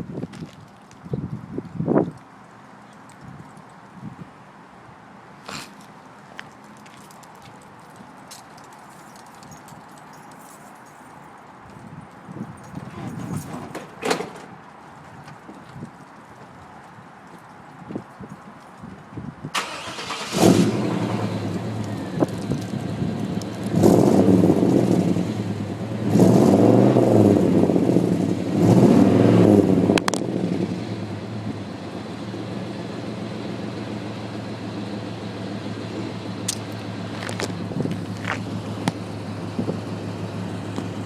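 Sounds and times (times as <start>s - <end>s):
engine revving: 19.6s - 32.5s
engine idling: 30.9s - 41.0s.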